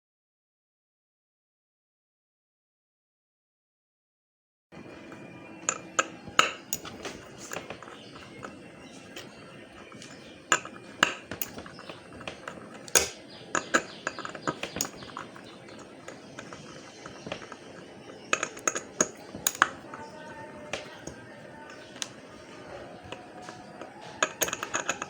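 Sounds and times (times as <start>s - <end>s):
tools clicking on metal: 5.6s - 25.0s.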